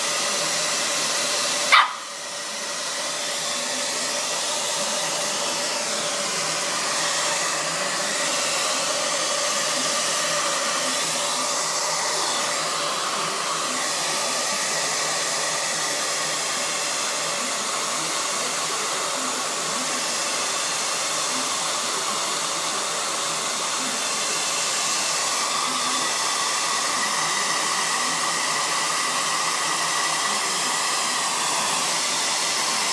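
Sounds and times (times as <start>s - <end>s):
hair dryer running: 0.0s - 32.9s.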